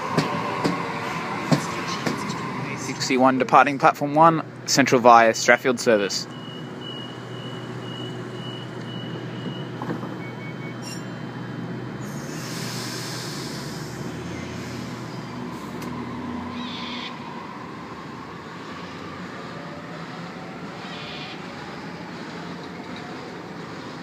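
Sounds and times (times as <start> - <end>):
electric train rumble: 0.0 - 5.0, 6.0 - 24.0
train whine sliding down: 12.0 - 16.5
air hiss: 12.1 - 15.1.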